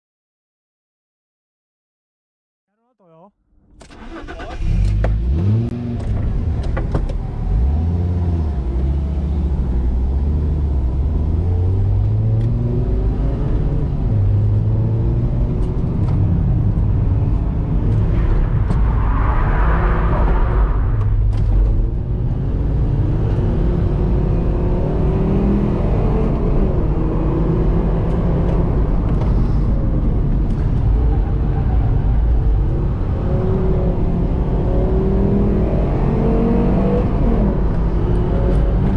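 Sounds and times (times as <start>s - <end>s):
car engine revving: 3.7s - 38.9s
high-pitched rushing noise: 18.1s - 21.3s.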